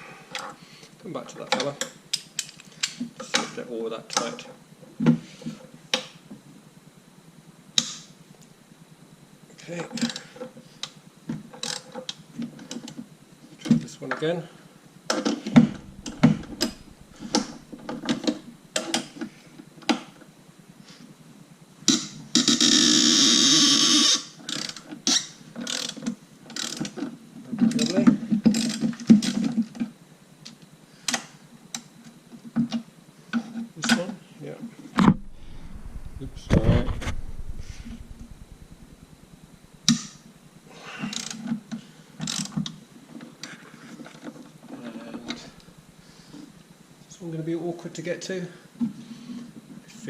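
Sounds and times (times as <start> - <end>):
sharp knock: 35.0 - 39.2.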